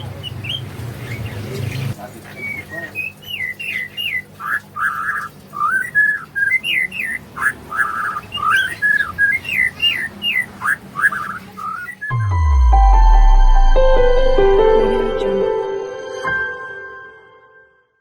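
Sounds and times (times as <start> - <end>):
songbird singing: 0.0 - 12.7.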